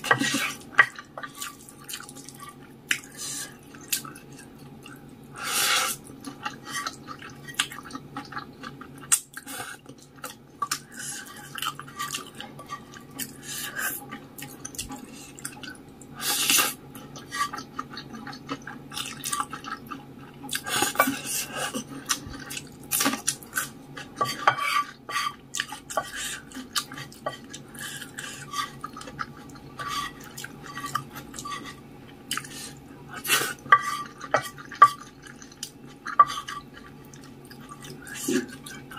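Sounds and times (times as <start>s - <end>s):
wet chewing and mouth smacks: 32.3s - 32.5s.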